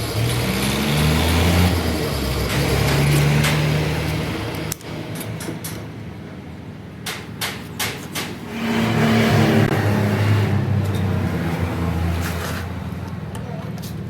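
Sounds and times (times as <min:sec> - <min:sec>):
engine running: 0:00.0 - 0:14.0
sharp knocks: 0:07.0 - 0:09.8.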